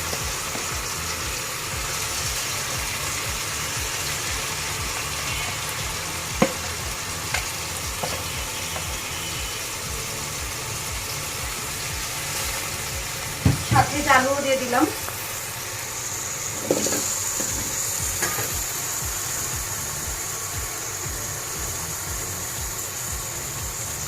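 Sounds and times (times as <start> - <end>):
rice and lentils sizzling in oil: 0.0 - 24.0.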